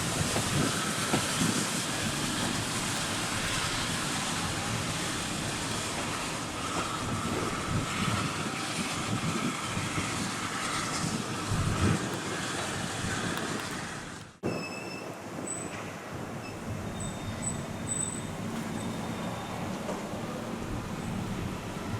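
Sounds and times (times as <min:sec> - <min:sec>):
train wheel squeal: 0:00.0 - 0:13.8, 0:14.4 - 0:21.9
train running on tracks: 0:00.0 - 0:21.9.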